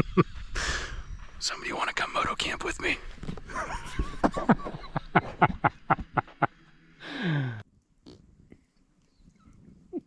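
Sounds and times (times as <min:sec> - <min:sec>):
group laughter: 0:00.0 - 0:00.5, 0:03.5 - 0:06.6.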